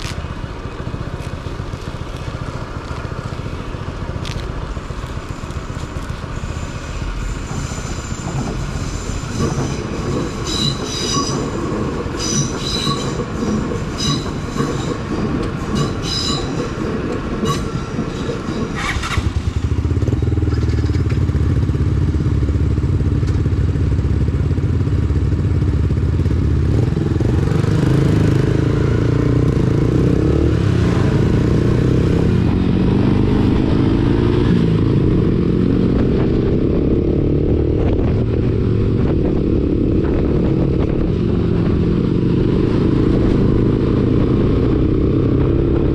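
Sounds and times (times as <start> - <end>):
high squeal: 5.3 - 19.3
motorcycle engine revving: 18.8 - 45.9.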